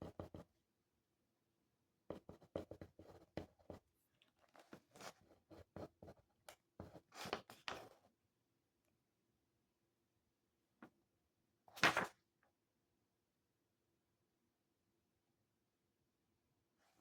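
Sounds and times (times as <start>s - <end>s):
pen scratching on paper: 0.0s - 0.4s, 2.1s - 3.8s, 5.0s - 6.2s, 6.8s - 7.9s.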